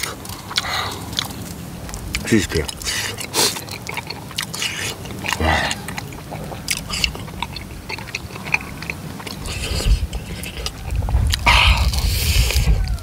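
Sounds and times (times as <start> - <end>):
person chewing food: 0.0 - 13.0
wet mouth clicks: 0.0 - 13.0.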